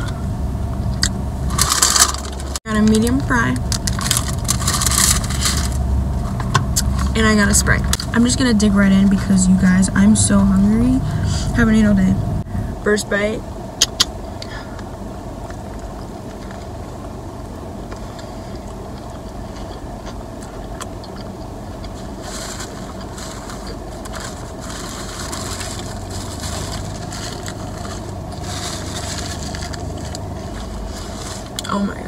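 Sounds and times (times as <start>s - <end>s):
low car cabin hum: 0.0s - 32.0s
wet crackly chewing: 17.9s - 31.6s.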